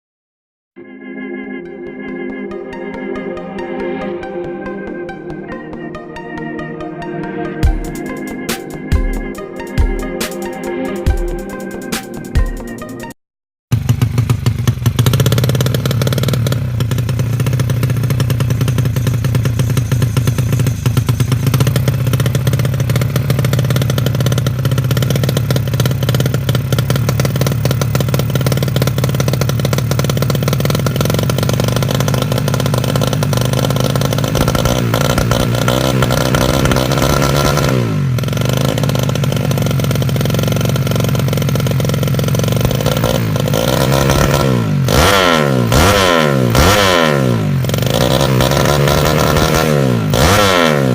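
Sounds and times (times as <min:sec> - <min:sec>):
motorcycle engine revving: 0:13.7 - 0:50.9.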